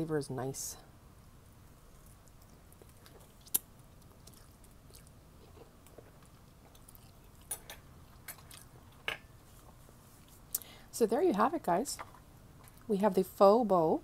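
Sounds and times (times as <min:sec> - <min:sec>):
person chewing: 0:01.6 - 0:10.7.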